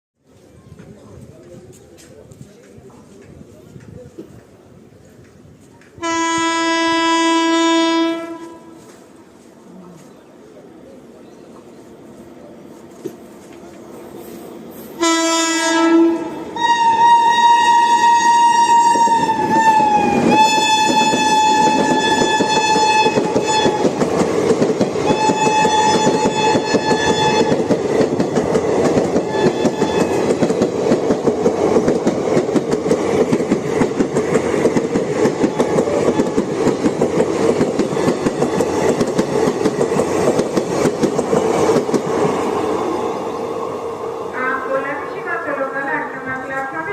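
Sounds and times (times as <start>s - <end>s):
train coaches rumbling past: 0.2s - 46.9s
locomotive horn blasts: 6.0s - 8.8s, 15.0s - 23.8s, 25.1s - 27.6s, 29.3s - 30.2s.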